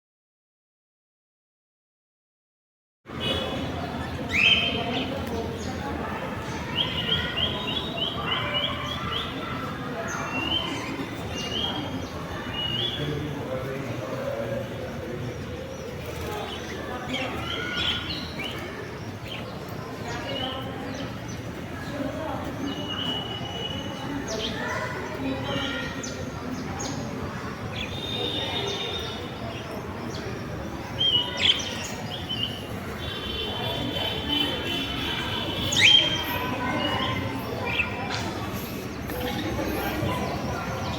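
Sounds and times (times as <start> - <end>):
birds chirping and whistling: 4.3 - 5.1, 27.8 - 32.7, 34.3 - 40.9.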